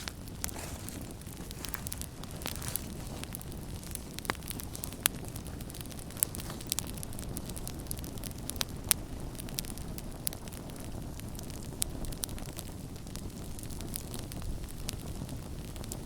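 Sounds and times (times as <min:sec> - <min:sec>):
campfire flames rumbling: 0:00.0 - 0:16.0
fire crackles and pops: 0:00.0 - 0:16.0.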